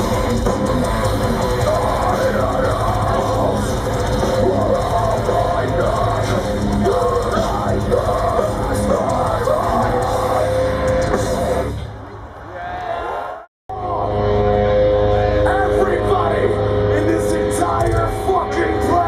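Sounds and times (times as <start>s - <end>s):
heavy metal band playing live: 0.0s - 12.0s, 13.7s - 19.0s
melodic guitar line: 13.7s - 19.0s.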